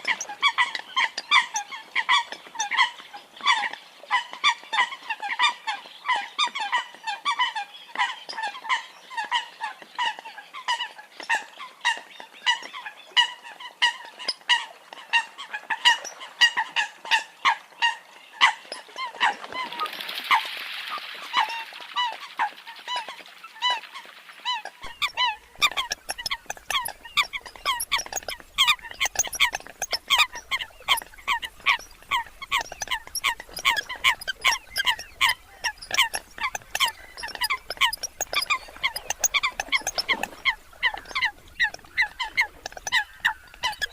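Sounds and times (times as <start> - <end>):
coots honking calls: 24.7 - 43.9.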